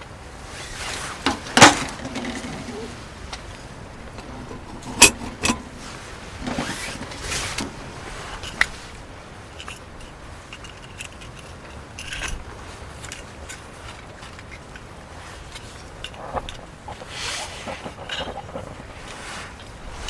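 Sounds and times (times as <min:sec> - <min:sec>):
short rustles: 0:00.4 - 0:10.1.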